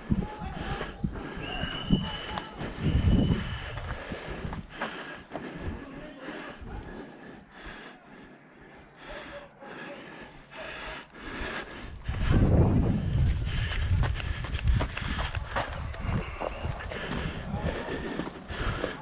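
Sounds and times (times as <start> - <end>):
person breathing heavily: 0.0 - 19.0
low rumble of movement: 11.8 - 19.0.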